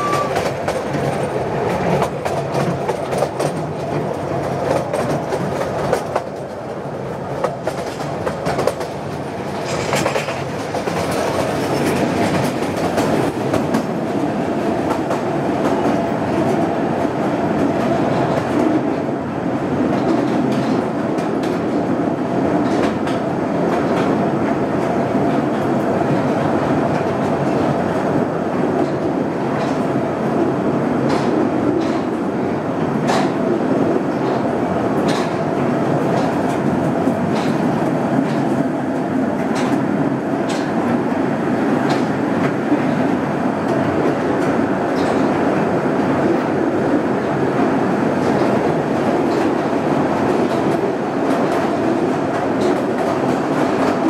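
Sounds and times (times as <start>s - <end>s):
wheels clicking over rail joints: 0.0s - 14.2s, 34.2s - 39.8s
train wheels rumbling on track: 0.0s - 54.0s.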